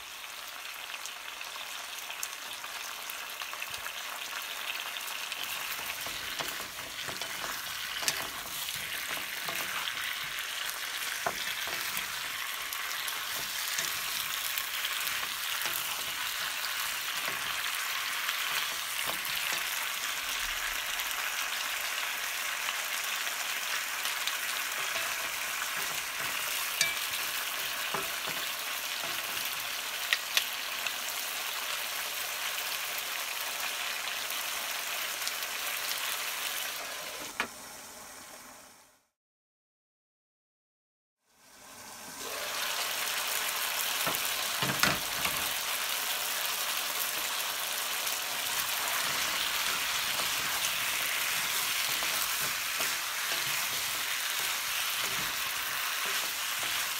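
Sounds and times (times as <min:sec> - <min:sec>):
vegetables sizzling in oil: 0:00.0 - 0:39.0, 0:41.3 - 0:56.9
wooden utensil stirring: 0:05.5 - 0:19.9, 0:24.8 - 0:30.2, 0:48.4 - 0:56.9.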